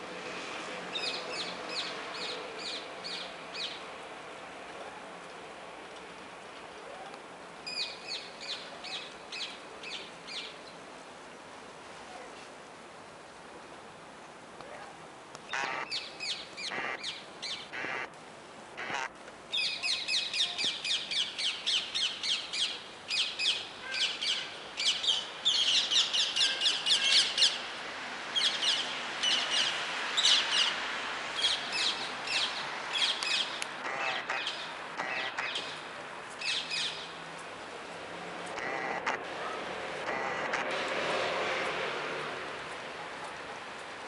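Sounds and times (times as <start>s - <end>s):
background noise: 0.0s - 44.0s
birds calling harshly: 15.5s - 18.1s, 18.8s - 27.7s, 31.4s - 37.1s, 38.5s - 40.8s.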